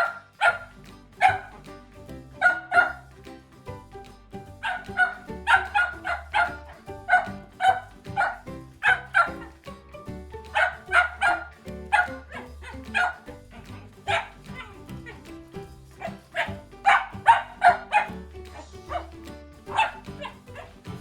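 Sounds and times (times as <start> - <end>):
puppy barking: 0.0 - 1.6, 2.4 - 3.1, 4.6 - 9.6, 10.5 - 15.2, 16.0 - 18.3, 18.9 - 21.0.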